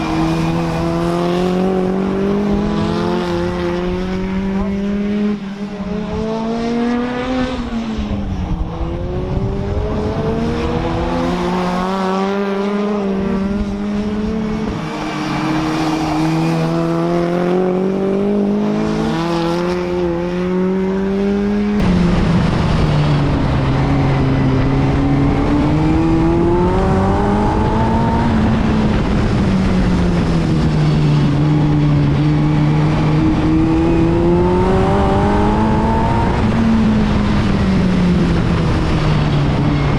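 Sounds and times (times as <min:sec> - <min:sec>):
stock car engine revving: 0:08.8 - 0:39.6.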